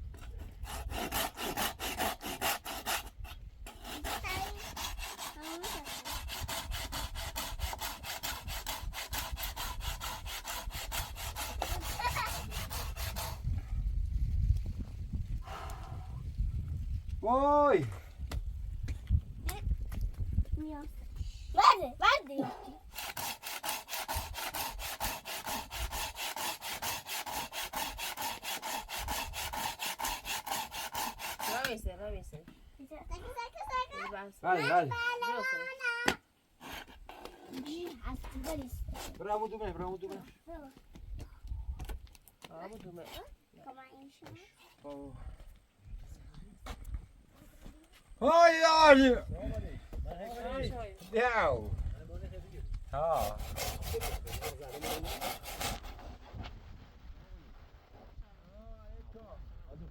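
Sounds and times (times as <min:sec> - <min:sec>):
hand saw cutting wood: 0:00.1 - 0:13.5, 0:22.8 - 0:31.8, 0:36.0 - 0:39.4, 0:53.0 - 0:56.4.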